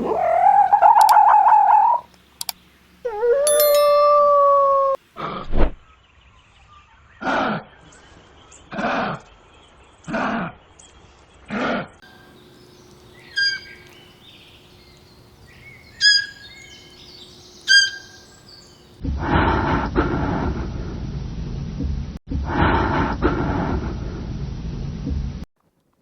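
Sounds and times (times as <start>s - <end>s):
loud rough animal call: 0.0s - 2.1s, 12.2s - 18.7s
animal calls: 0.0s - 2.2s, 3.0s - 5.0s, 12.1s - 18.8s
sharp high chirps: 3.1s - 4.6s, 12.1s - 18.7s.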